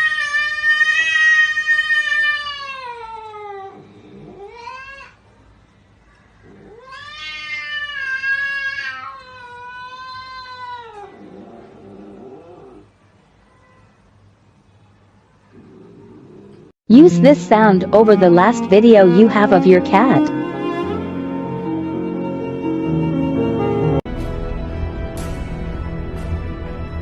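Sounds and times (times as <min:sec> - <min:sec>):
cat yowling: 0:00.0 - 0:05.2, 0:06.4 - 0:11.6, 0:17.6 - 0:19.1.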